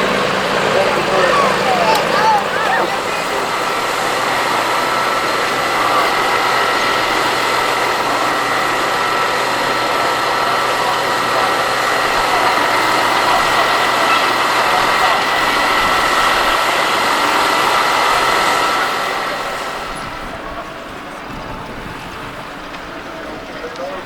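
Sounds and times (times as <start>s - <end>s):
steady high whine: 0.0s - 24.0s
vehicle engine running: 0.0s - 24.0s.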